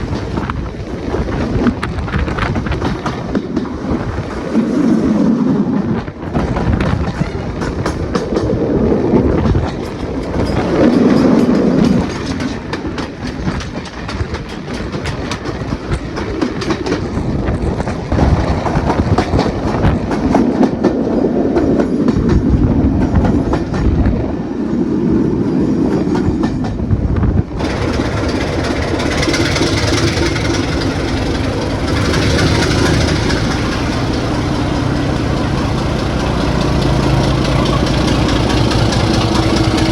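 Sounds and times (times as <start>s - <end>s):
wheels clattering over rail joints: 0.0s - 24.1s, 25.8s - 39.9s
diesel locomotive engine rumble: 0.0s - 39.9s.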